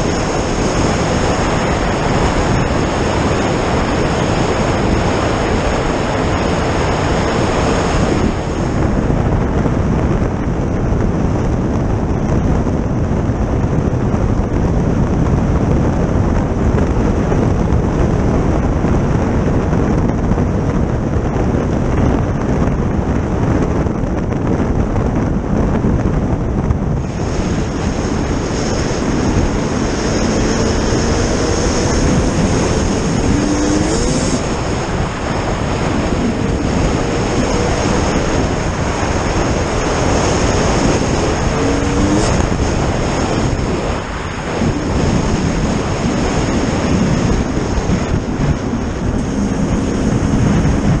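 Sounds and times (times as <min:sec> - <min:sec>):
heavy wind on microphone: 0:00.0 - 0:51.0
high steady whine: 0:00.0 - 0:51.0
vehicle engine running: 0:00.0 - 0:51.0.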